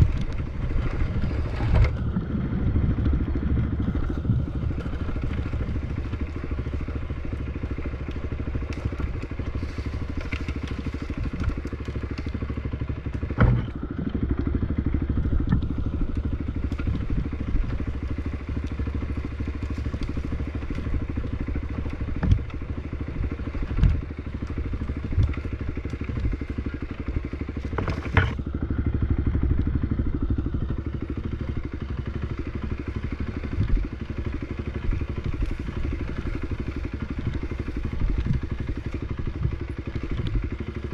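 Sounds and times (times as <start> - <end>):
knocks and thumps over rough ground: 0.0 - 40.9
off-road bike engine: 0.0 - 40.9.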